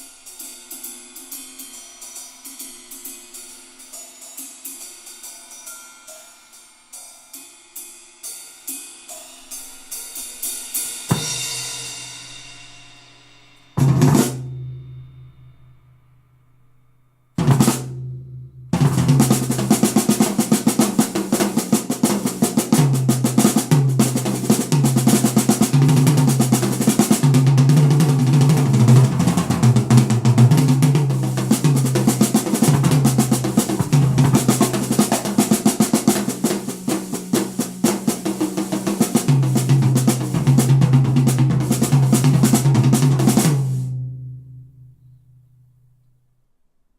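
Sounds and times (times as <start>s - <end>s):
drum-heavy music: 11.1s - 12.0s, 18.8s - 43.7s.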